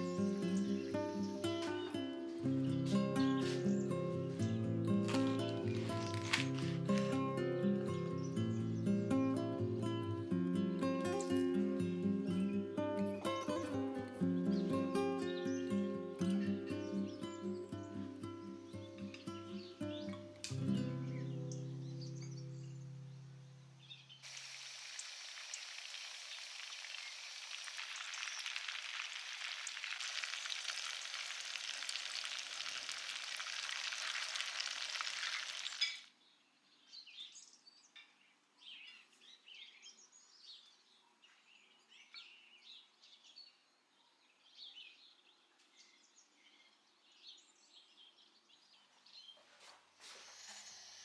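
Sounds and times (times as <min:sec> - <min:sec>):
food sizzling in hot oil: 0:24.2 - 0:36.1
faint bird chirps: 0:50.1 - 0:51.0.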